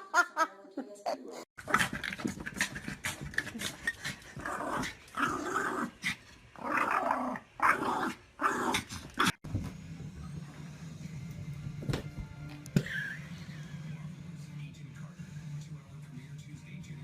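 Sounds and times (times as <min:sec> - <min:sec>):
dog growling: 0:01.6 - 0:09.4.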